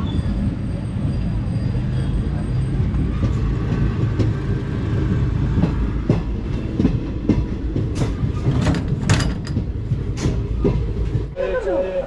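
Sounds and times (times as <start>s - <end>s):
train coach rumble: 0.0s - 12.0s
wheels clacking over rail joints: 2.9s - 11.4s.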